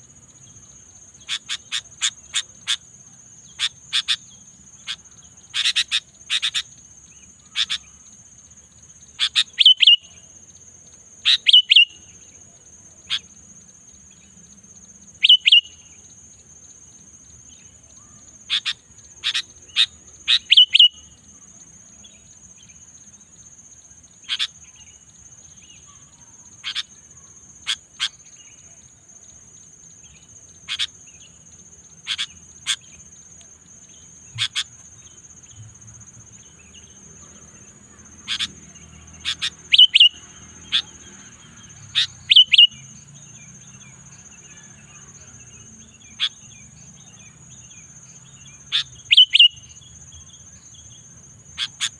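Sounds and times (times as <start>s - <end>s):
high-pitched insect trill: 0.0s - 51.9s
bird sharp chirping calls: 1.2s - 2.8s, 3.5s - 8.0s, 9.1s - 10.2s, 11.2s - 12.1s, 15.2s - 15.8s, 18.5s - 21.2s, 24.2s - 25.0s, 26.6s - 27.0s, 30.1s - 33.1s, 33.8s - 43.0s, 48.4s - 49.9s, 51.6s - 51.9s.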